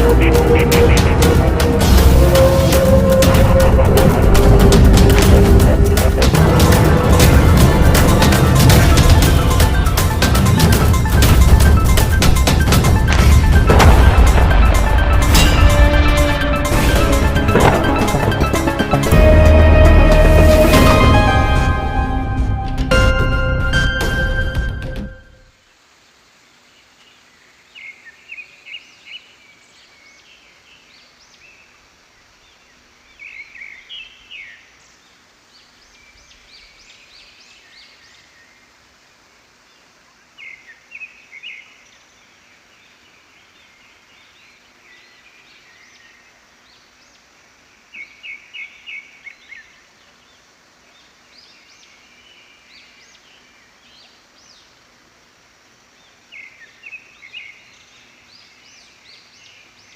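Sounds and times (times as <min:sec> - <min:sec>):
steady hiss: 0:25.4 - 0:59.9.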